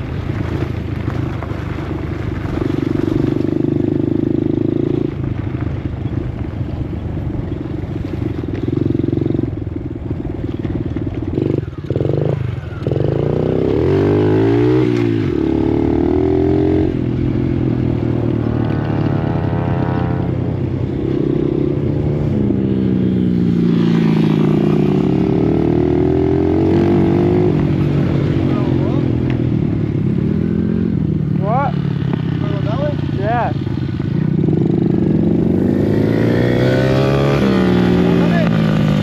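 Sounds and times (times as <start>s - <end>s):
dirt bike engine revving: 10.7s - 39.0s.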